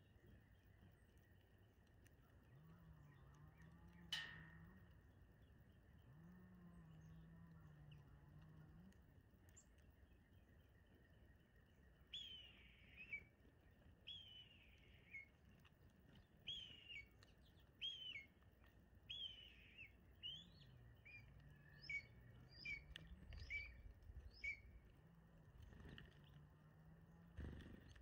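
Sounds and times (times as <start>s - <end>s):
songbird whistled call: 12.1s - 13.3s, 14.1s - 15.3s, 16.5s - 17.1s, 17.8s - 18.3s, 19.1s - 24.7s.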